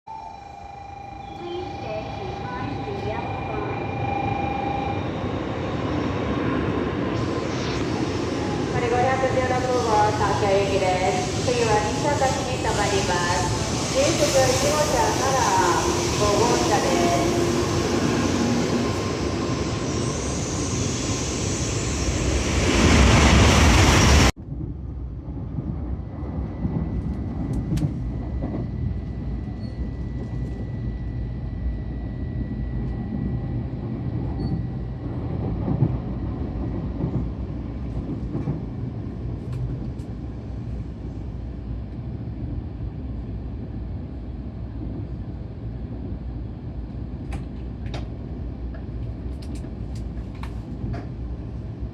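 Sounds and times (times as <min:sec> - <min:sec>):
train low rumble: 0:00.1 - 0:51.9
train loud rushing: 0:01.2 - 0:24.4.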